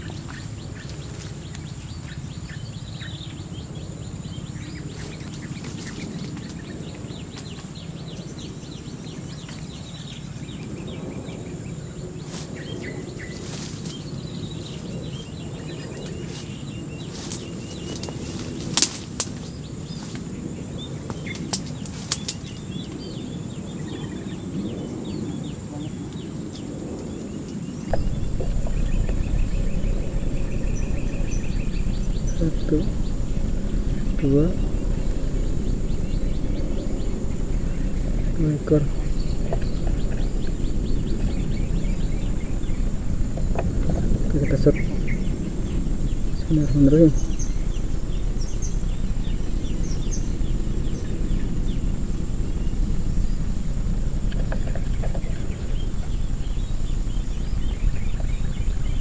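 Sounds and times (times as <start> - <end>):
bird calls: 0.0 - 59.0
steady low rumble: 0.0 - 59.0
sharp clicks: 21.1 - 22.5.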